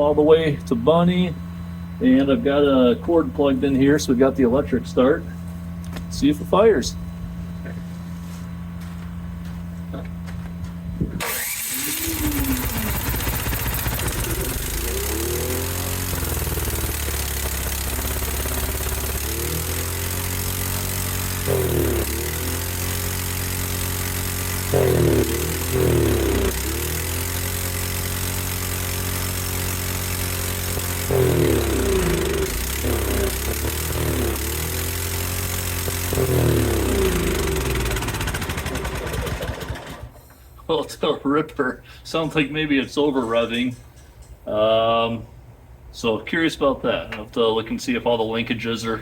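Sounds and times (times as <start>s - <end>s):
snowblower engine running fast: 11.2s - 40.2s.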